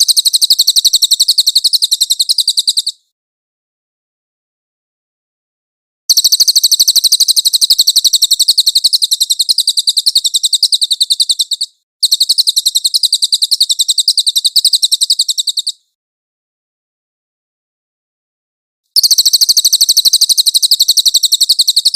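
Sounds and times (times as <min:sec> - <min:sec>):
songbird rapid high chirps: 0:00.0 - 0:03.0, 0:06.1 - 0:15.9, 0:19.0 - 0:21.9.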